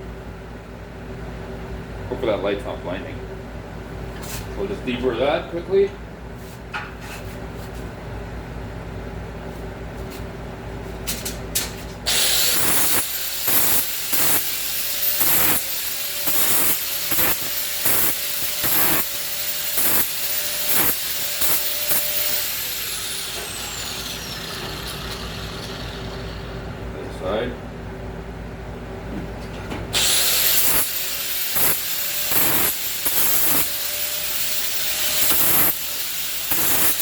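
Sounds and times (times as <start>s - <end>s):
electric grinder grinding steel: 12.1s - 26.6s, 30.0s - 37.0s.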